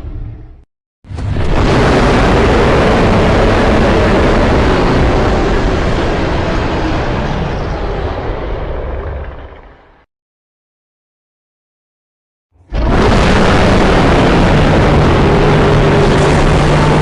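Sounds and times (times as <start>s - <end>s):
loud rumbling roar: 1.1s - 10.0s, 12.6s - 17.0s.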